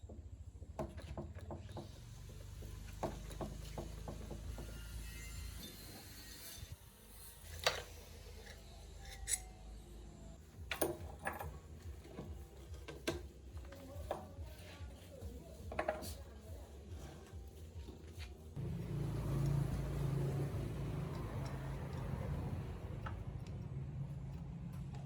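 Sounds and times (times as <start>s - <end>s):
metal tools clinking: 10.6s - 12.4s.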